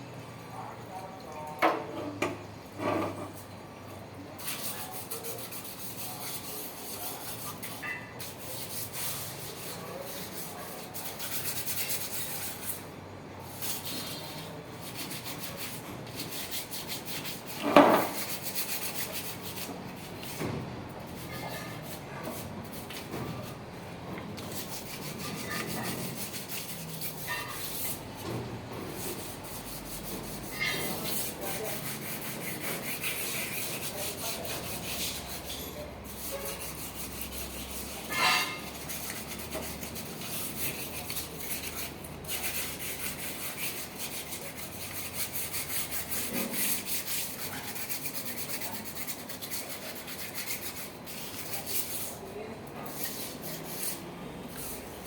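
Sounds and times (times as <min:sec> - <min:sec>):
scratchy scrubbing of metal parts: 0:13.5 - 0:52.2, 0:52.8 - 0:55.0.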